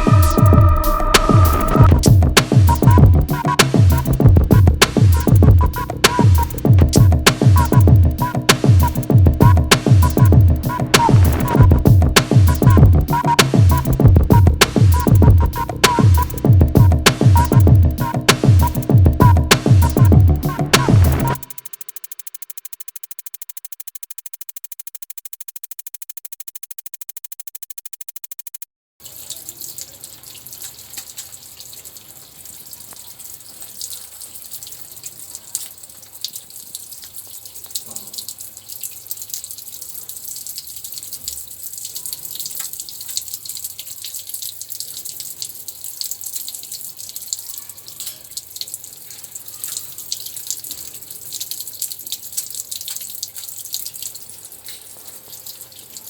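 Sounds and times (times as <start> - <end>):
running splashing water: 0.0 - 21.6, 29.0 - 56.0
electronic background music: 0.0 - 28.6.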